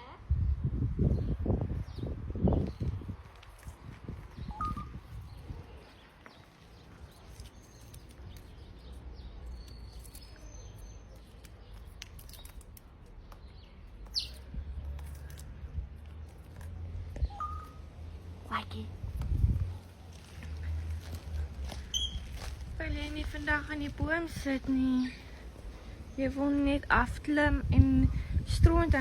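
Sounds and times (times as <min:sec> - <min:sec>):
bird chirps and whistles: 0:04.4 - 0:05.0, 0:17.2 - 0:17.8
low outdoor rumble: 0:11.5 - 0:29.0.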